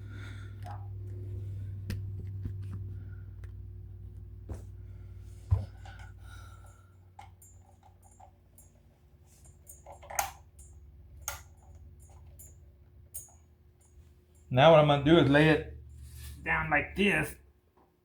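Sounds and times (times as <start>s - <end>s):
low hum: 0.0s - 8.8s
heater parts clicking and knocking: 5.5s - 14.6s.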